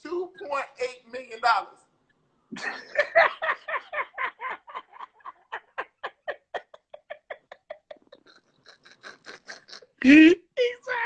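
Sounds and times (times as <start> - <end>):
man laughing hard: 2.6 - 9.8.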